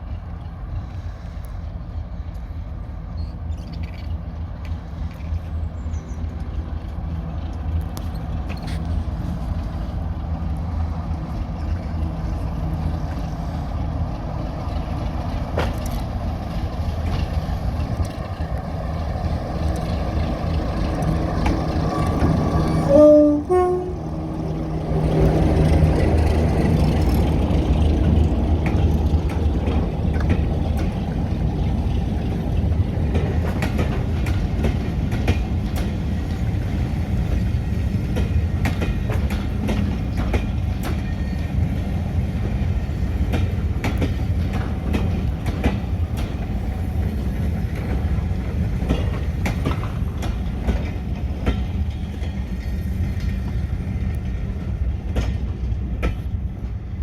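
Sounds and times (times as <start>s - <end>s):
diesel train engine rumble: 0.0s - 57.0s
wheels clicking over rail joints: 3.2s - 57.0s
train horn blast: 22.6s - 24.5s.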